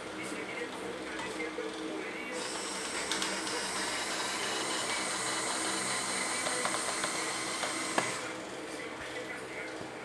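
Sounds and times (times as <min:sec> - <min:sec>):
electric drill running: 0:02.4 - 0:08.4.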